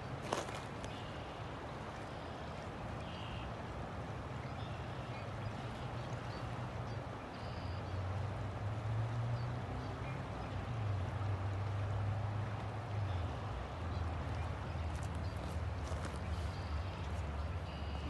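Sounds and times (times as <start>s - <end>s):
river water flowing: 0.0s - 18.0s.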